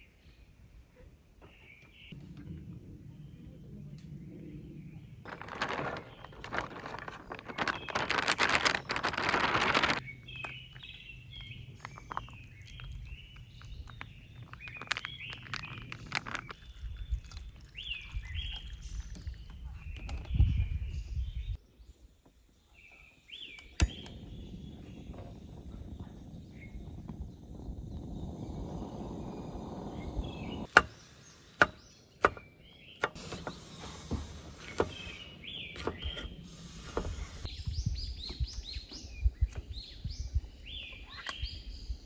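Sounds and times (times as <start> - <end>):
birds chirping: 4.1 - 42.0
loud rustling: 5.3 - 10.0.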